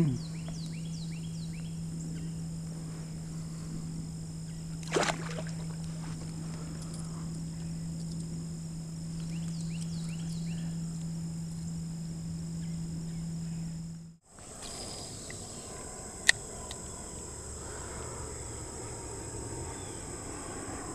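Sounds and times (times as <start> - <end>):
high-pitched insect chorus: 0.0 - 20.9
low hum: 0.0 - 20.9
short insect chirps: 0.0 - 20.9.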